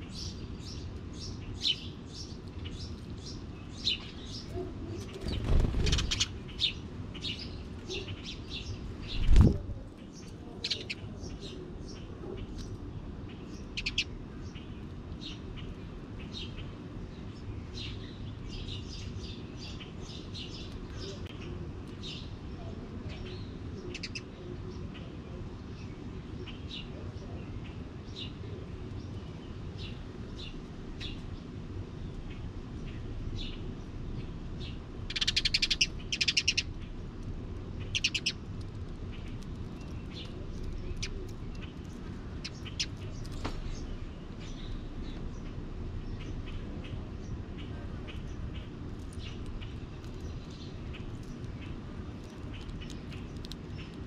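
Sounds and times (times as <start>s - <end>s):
low background rumble: 0.0s - 24.0s, 24.6s - 54.0s
wild birds chirping: 0.0s - 54.0s
bird chattering trills: 3.8s - 11.5s, 13.6s - 14.1s, 23.9s - 24.3s, 35.1s - 36.9s, 37.8s - 38.4s, 39.1s - 45.5s.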